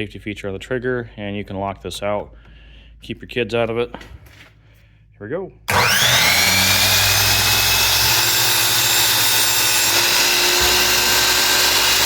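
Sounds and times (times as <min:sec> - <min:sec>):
miter saw high whine: 0:05.7 - 0:12.0.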